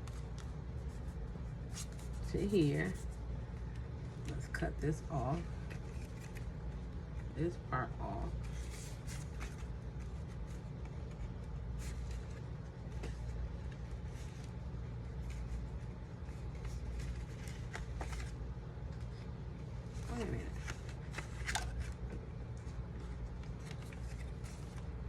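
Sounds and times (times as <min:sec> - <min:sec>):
paper rustling and clicking: 0:05.6 - 0:06.5, 0:08.4 - 0:19.2, 0:20.0 - 0:22.7, 0:23.3 - 0:24.9.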